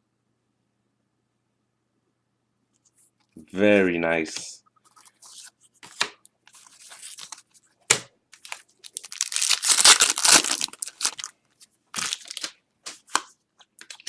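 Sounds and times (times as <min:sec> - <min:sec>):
foil wrapper tearing and crinkling: 0:08.4 - 0:13.1.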